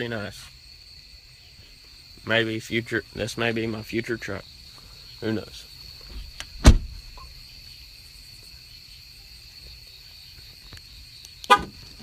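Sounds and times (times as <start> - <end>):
crickets chirring: 0.0 - 12.0
loud thump: 6.1 - 7.2.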